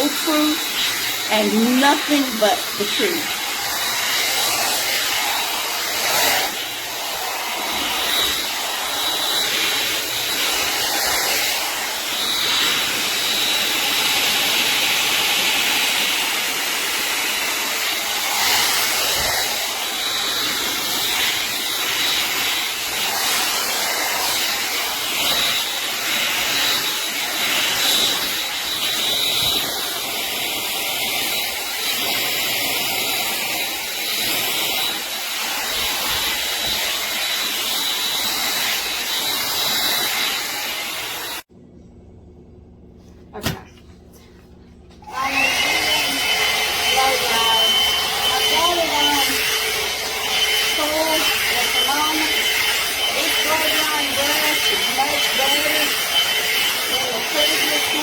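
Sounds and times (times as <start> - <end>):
hot air brush blowing: 0.0 - 41.5, 45.0 - 58.0
high motor whine: 45.0 - 58.0.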